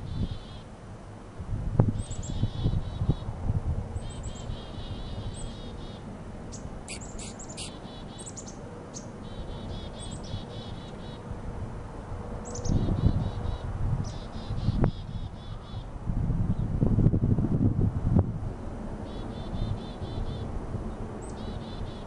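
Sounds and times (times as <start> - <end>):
wind rumble on microphone: 0.0 - 0.6, 1.2 - 7.8, 11.2 - 22.0
small birds chirping: 4.0 - 11.2.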